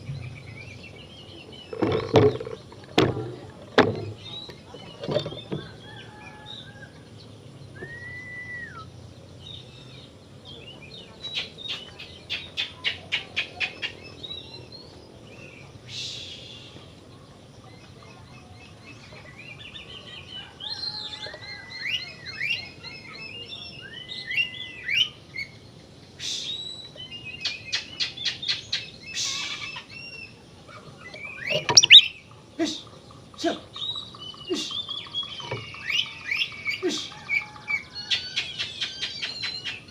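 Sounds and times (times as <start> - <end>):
magpie-robin singing: 31.0 - 39.9.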